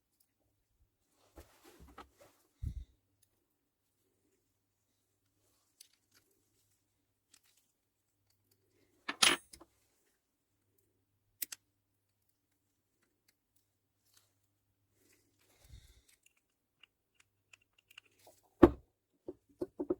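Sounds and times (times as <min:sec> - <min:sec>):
metal parts clattering: 0:09.1 - 0:09.6
metal parts clicking and clinking: 0:09.1 - 0:09.6, 0:16.0 - 0:18.3.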